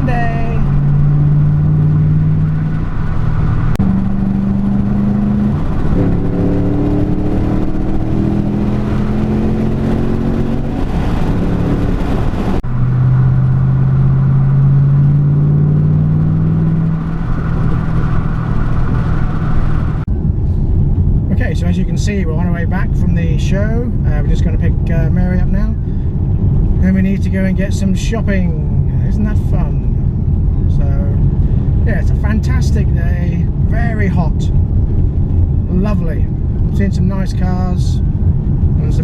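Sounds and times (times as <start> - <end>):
car engine accelerating: 0.0 - 22.8.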